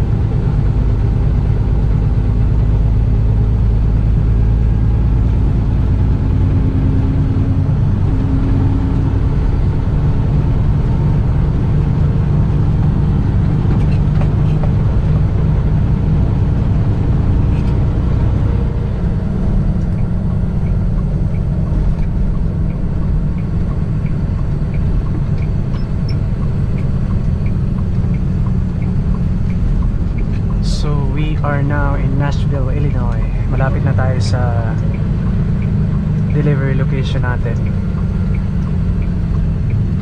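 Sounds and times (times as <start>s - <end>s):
truck engine and road drone: 0.0s - 40.0s
turn signal clicking: 17.4s - 31.3s, 32.2s - 40.0s.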